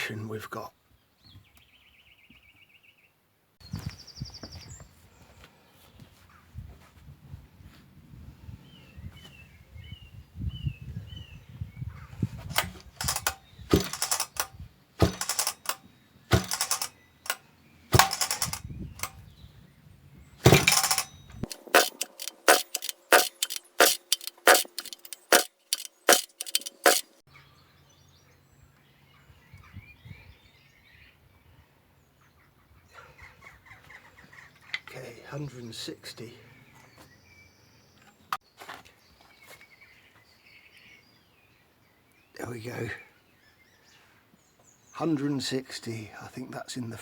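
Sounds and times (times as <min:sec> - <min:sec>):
chainsaw recoil starter pulls: 0:12.5 - 0:17.4, 0:18.0 - 0:19.1, 0:20.4 - 0:27.2.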